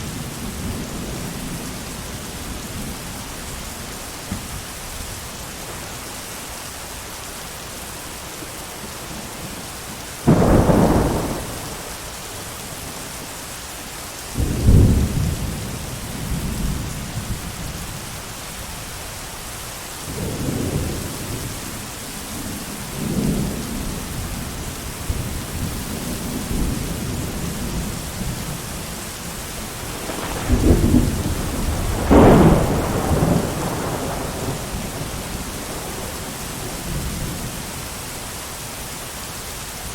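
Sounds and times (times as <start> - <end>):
heavy rain: 0.0 - 39.9
thunder rumbling: 8.4 - 13.0, 22.4 - 37.9.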